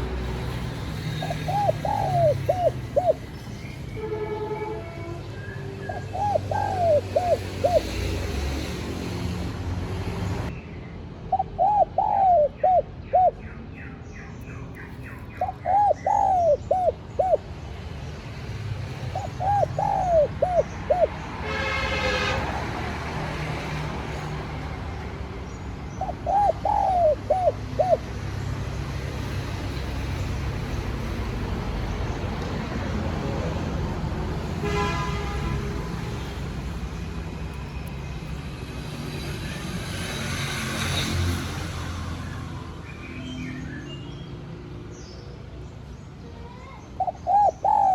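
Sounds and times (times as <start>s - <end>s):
dove cooing: 0.0s - 3.4s, 5.8s - 8.6s, 11.3s - 13.4s, 14.9s - 17.5s, 19.0s - 21.2s, 25.9s - 28.2s, 47.0s - 47.9s.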